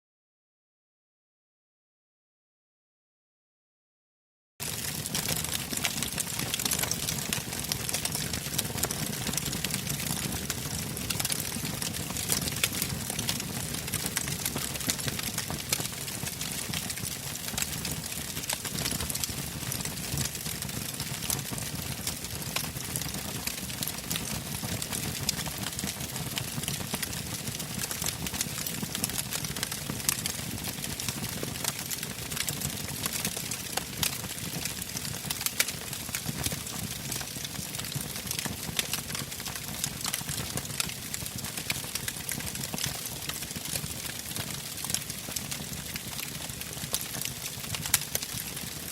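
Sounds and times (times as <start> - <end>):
campfire crackling and popping: 4.6 - 48.9.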